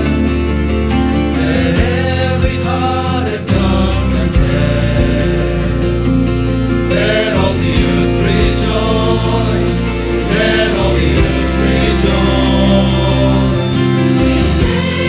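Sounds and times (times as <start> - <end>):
bass and keyboard chords: 0.0 - 15.0
choir singing: 0.0 - 15.0
steady drum beat: 1.7 - 5.7, 6.9 - 15.0.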